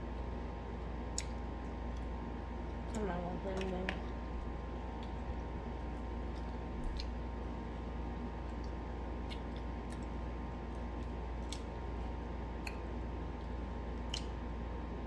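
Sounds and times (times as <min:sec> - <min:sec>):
steady low hum: 0:00.0 - 0:15.0
person eating: 0:03.6 - 0:14.5.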